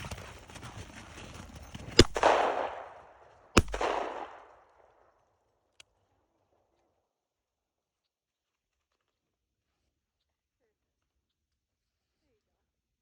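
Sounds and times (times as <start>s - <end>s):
gunshots with echo: 1.9s - 4.8s.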